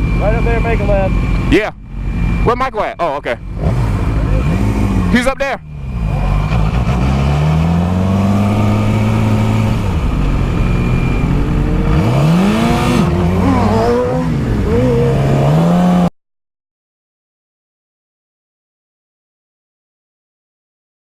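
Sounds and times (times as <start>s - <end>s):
motorcycle engine revving: 0.0s - 16.1s.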